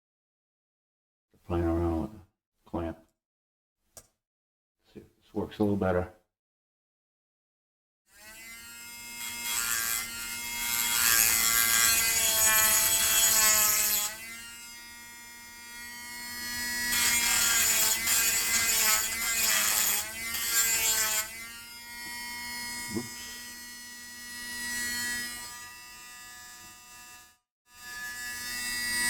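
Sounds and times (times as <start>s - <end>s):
small electric motor buzzing: 8.1s - 29.0s.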